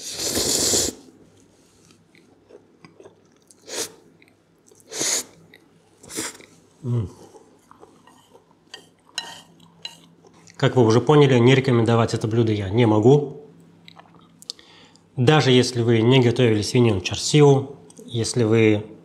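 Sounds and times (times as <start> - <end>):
person chewing: 0.2 - 10.6, 13.8 - 14.6.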